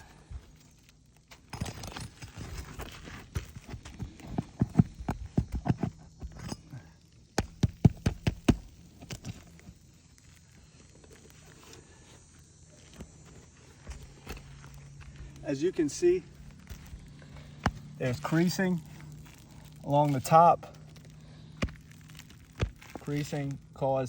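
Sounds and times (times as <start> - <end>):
hand tool knocking on shingles: 7.4 - 9.2.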